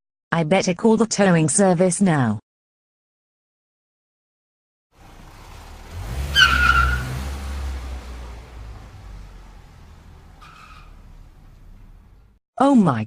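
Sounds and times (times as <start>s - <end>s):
brake squeal: 5.0s - 12.4s
tow truck engine running: 5.0s - 12.4s.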